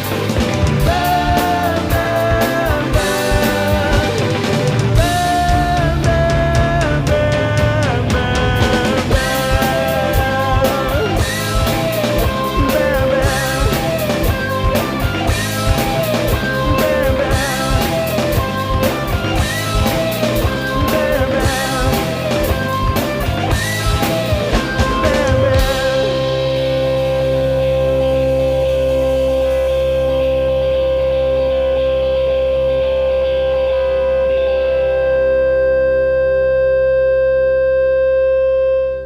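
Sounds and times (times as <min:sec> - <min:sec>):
drum kit playing: 0:00.0 - 0:31.1
rock song with singing and guitar: 0:00.0 - 0:38.6
guitar chord ringing: 0:21.4 - 0:39.0.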